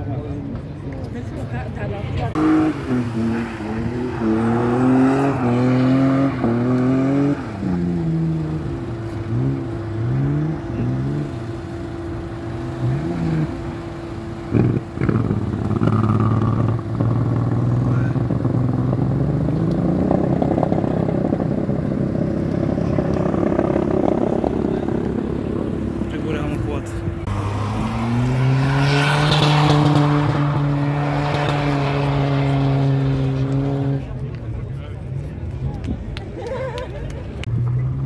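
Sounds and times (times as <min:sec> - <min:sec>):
car engine revving hard: 0:02.4 - 0:11.4, 0:27.2 - 0:34.0.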